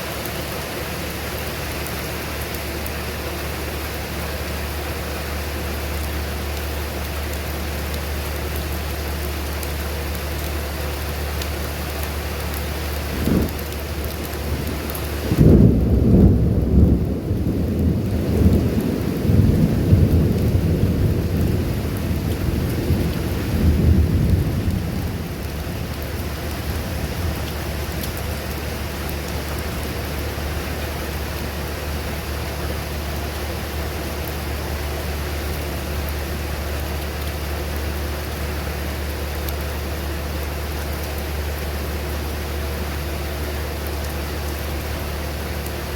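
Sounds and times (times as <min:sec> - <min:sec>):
steady rain: 0:00.0 - 0:45.9
rolling thunder: 0:13.1 - 0:31.0.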